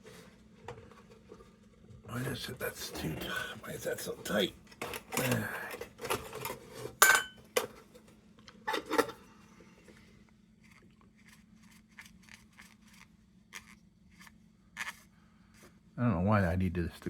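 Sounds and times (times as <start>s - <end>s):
small ticks and scrapes: 10.6s - 15.7s.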